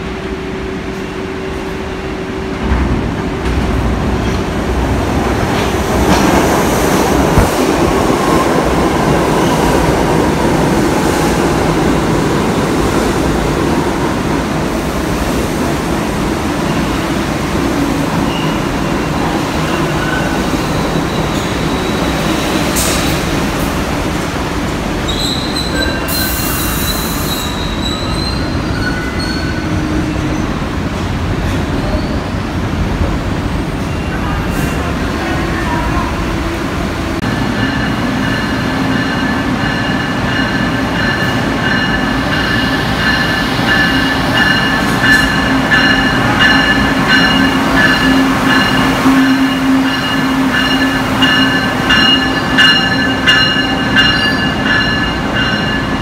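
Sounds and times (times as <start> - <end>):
train rumbling on rails: 0.0 - 56.0
high-pitched wheel squeals: 25.1 - 30.5.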